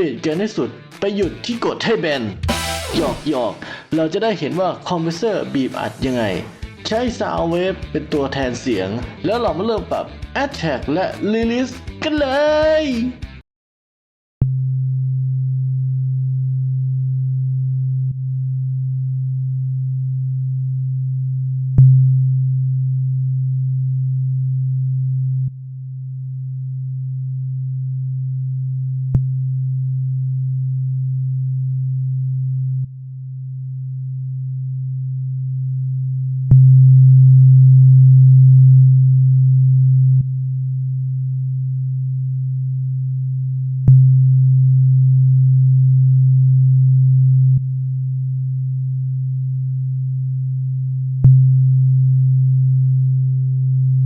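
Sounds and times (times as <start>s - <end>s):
low sine-wave test tone: 2.4s - 3.6s, 14.4s - 54.0s.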